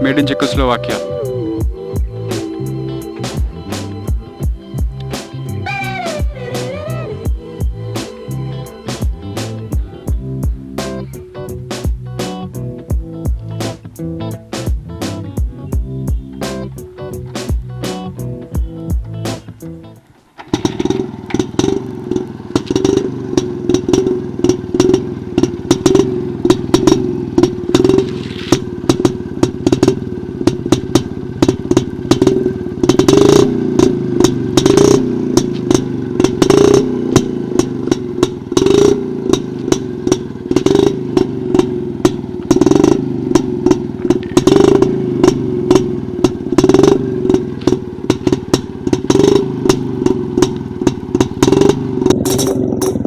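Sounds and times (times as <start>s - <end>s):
two-stroke engine running: 0.0s - 53.0s
sharp clattering clicks: 22.5s - 53.0s.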